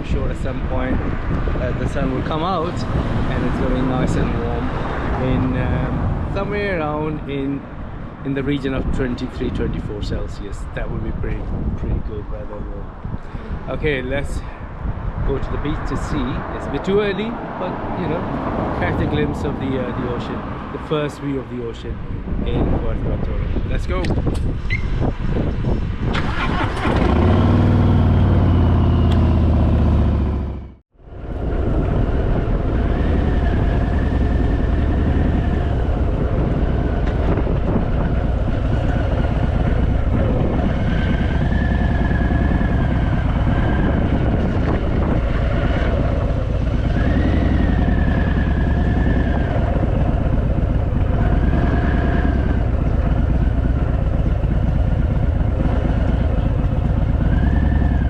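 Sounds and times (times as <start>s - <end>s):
motorcycle engine revving: 24.4s - 58.0s.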